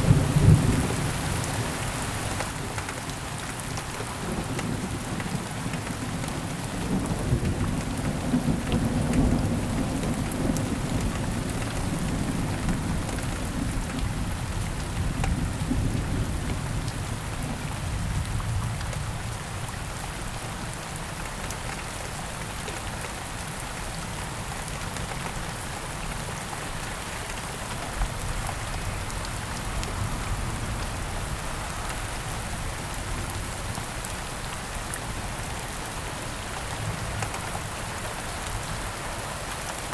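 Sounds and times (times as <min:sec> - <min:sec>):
low rumble of thunder: 0:00.0 - 0:01.3, 0:04.2 - 0:20.0
heavy rain: 0:00.0 - 0:39.9.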